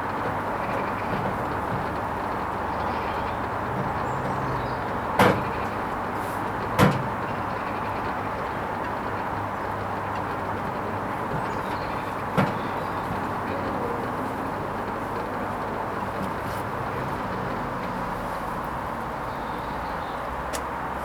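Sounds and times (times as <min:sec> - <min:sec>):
washing machine humming: 0:00.0 - 0:20.9
washing machine knocks: 0:03.7 - 0:05.7, 0:06.7 - 0:07.2, 0:11.2 - 0:14.2.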